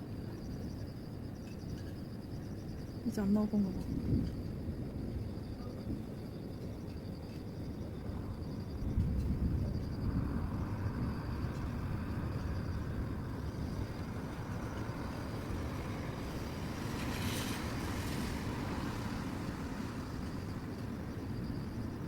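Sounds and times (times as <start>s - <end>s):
insects trilling: 0.0s - 22.0s
steady low rumble: 3.2s - 5.4s.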